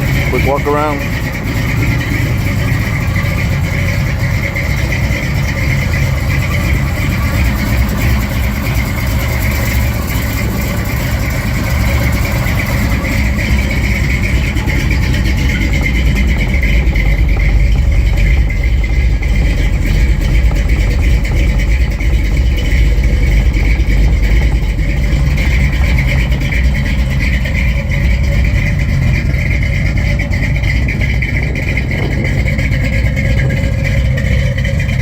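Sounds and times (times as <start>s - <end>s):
truck engine running: 0.0s - 35.0s.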